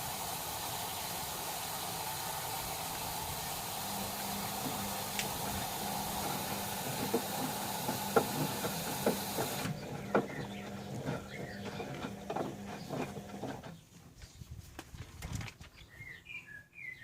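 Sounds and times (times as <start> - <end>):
water running into washing machine: 0.0 - 13.6
washing machine hum: 0.0 - 13.8
knocks and clicks: 6.2 - 10.4.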